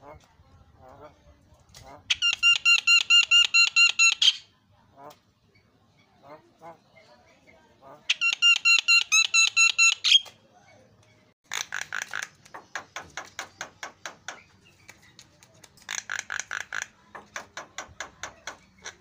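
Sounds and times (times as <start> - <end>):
myna harsh chattering calls: 11.5 - 14.2, 15.8 - 19.0.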